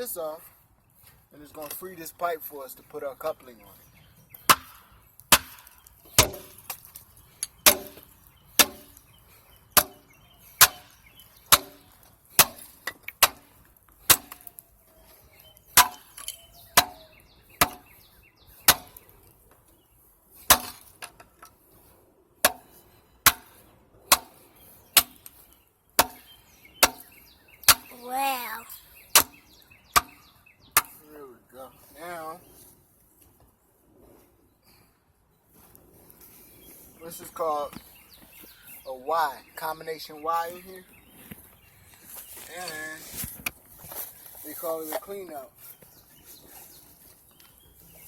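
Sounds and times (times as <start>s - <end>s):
hammer striking cast-iron pipe: 4.5s - 6.6s, 7.6s - 8.0s, 8.6s - 9.0s, 16.8s - 17.9s, 18.7s - 19.0s, 22.4s - 23.5s, 24.1s - 24.4s, 26.0s - 27.0s.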